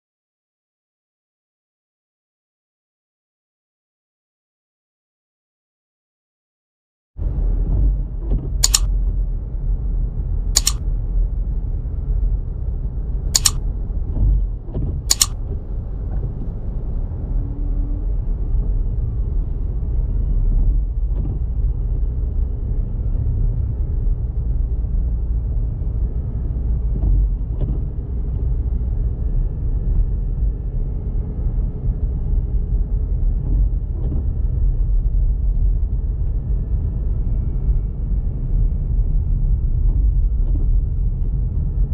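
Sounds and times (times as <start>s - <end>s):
car road and engine rumble: 7.2s - 41.9s
sharp clicks: 8.6s - 8.9s, 10.6s - 10.8s, 13.4s - 13.6s, 15.1s - 15.4s.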